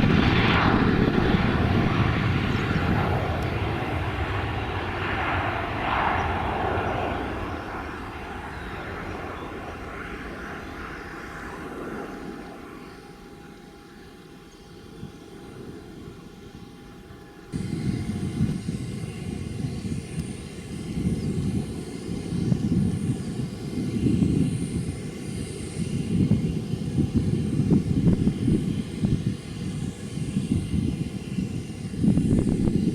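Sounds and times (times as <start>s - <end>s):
uneven low rumble in gusts: 0.0s - 9.9s, 17.6s - 32.9s
jet engine noise: 0.0s - 32.9s.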